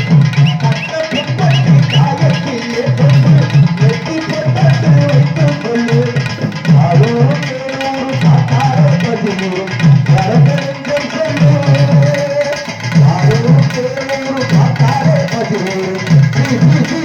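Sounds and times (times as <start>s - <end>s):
sliding melody line: 0.0s - 4.8s
drum strokes: 0.0s - 17.0s.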